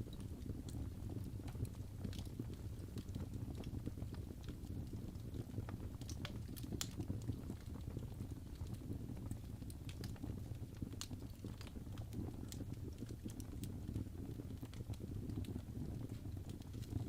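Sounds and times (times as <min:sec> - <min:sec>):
fireplace crackling: 0:00.0 - 0:17.0.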